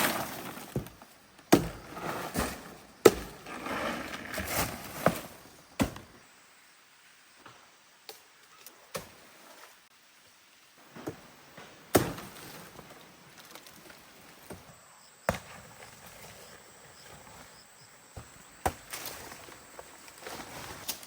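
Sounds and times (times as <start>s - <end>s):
wood chopping: 0.0s - 3.6s, 4.3s - 6.2s, 11.9s - 12.8s, 15.3s - 15.8s, 18.2s - 19.3s.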